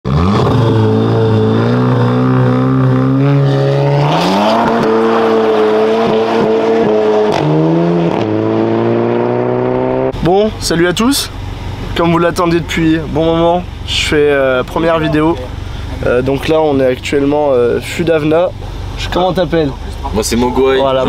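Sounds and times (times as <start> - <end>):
car engine revving: 0.1 - 21.0.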